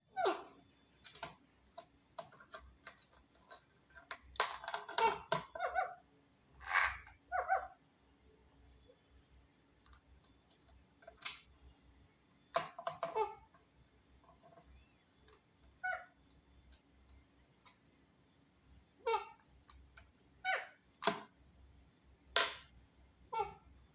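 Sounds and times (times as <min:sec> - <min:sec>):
parrot calls: 0:00.1 - 0:01.3, 0:04.9 - 0:06.0, 0:06.6 - 0:07.8, 0:13.0 - 0:13.5, 0:15.8 - 0:16.2, 0:19.0 - 0:19.5, 0:20.4 - 0:20.8, 0:23.3 - 0:23.7.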